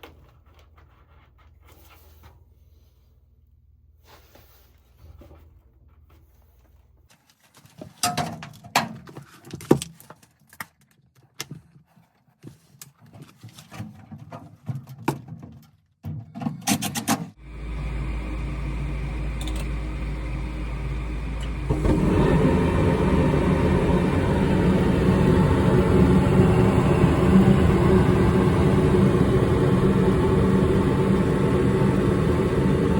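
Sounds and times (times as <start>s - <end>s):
furnace motor hum: 17.4s - 32.9s.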